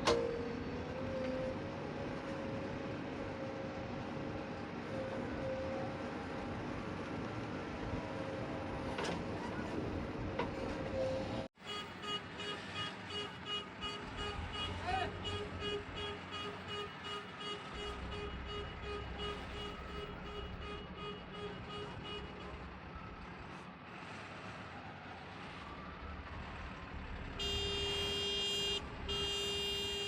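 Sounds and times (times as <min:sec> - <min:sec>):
heavy vehicle engines rumbling: 0:00.0 - 0:30.0
vehicle horn blast: 0:11.6 - 0:22.6, 0:27.4 - 0:30.0.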